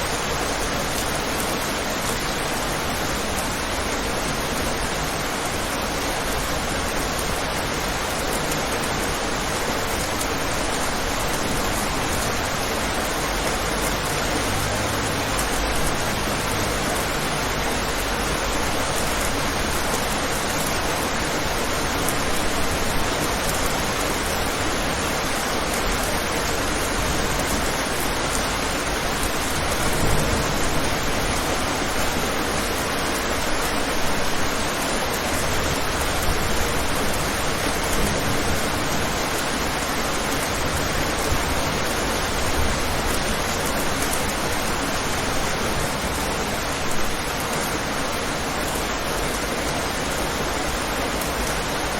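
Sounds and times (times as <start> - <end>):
rain on a window: 0.0 - 51.9
low rumbles: 29.0 - 32.7.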